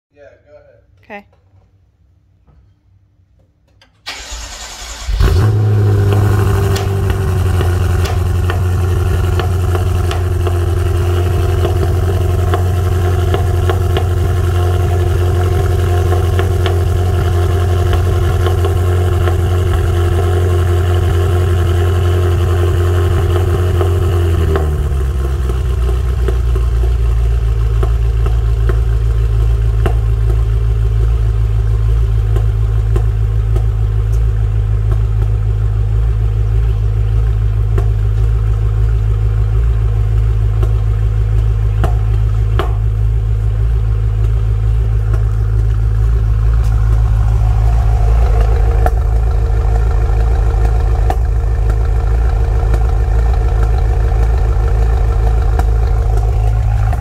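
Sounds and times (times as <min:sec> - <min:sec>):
car engine starting and idling: 0:03.4 - 0:57.0.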